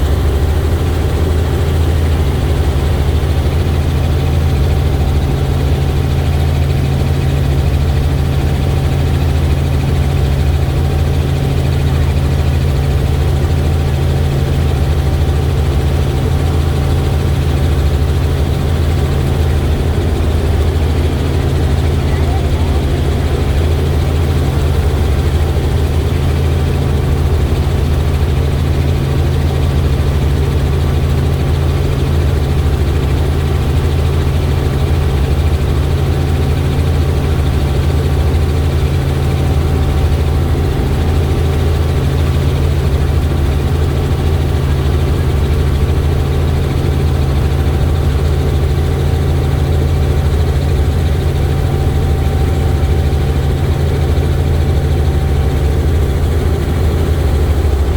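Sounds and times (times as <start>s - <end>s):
helicopter engine and rotor drone: 0.0s - 57.9s
faint steady whine: 15.7s - 27.6s.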